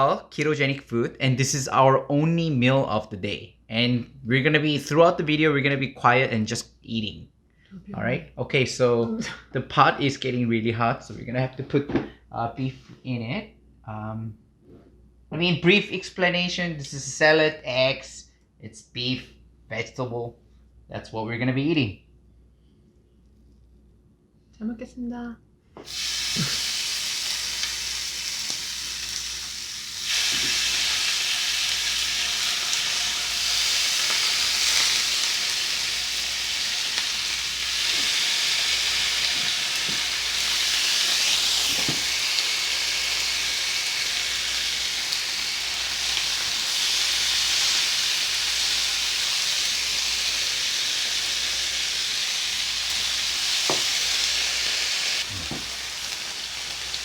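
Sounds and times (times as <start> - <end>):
beef sizzling in a pan: 25.8 - 57.0.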